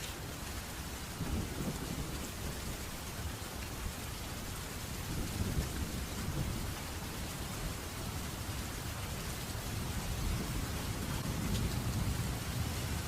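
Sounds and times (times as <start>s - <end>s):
steady rain falling: 0.0s - 13.0s
low rolling thunder: 1.2s - 3.1s, 4.8s - 13.0s.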